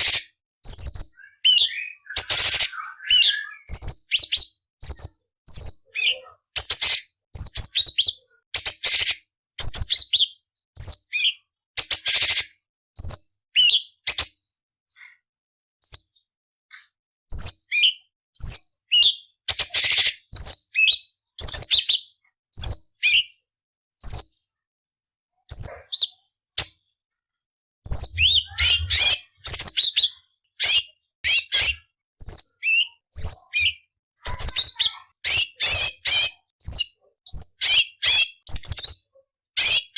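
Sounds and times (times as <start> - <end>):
bird singing whistled notes: 0.6 - 6.2, 13.0 - 14.2, 17.3 - 23.4, 27.9 - 33.9
bird harsh rasping phrases: 27.9 - 30.4, 33.6 - 36.4.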